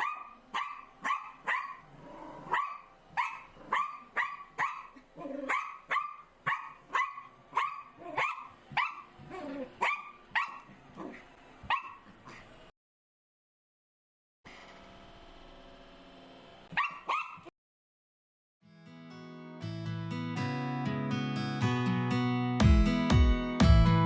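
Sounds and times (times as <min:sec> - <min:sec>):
small dog barking rapidly: 0:00.0 - 0:12.4, 0:16.7 - 0:17.5.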